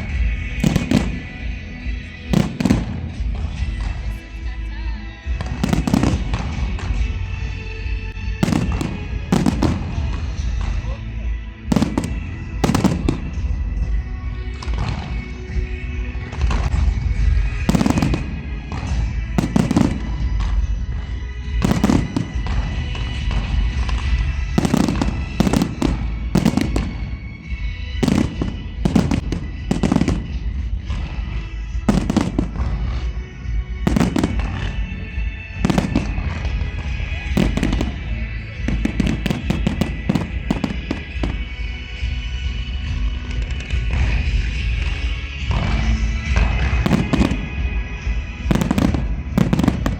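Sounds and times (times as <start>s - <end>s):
fireworks bangs: 0.0s - 4.3s, 5.3s - 7.2s, 8.2s - 10.8s, 11.7s - 13.9s, 16.3s - 49.9s
music playing: 0.0s - 49.9s.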